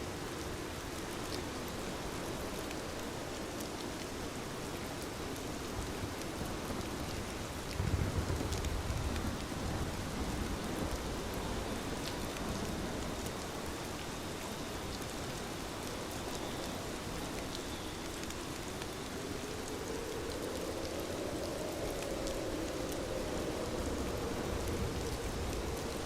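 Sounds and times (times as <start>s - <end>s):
rain pattering on a window: 0.0s - 26.0s.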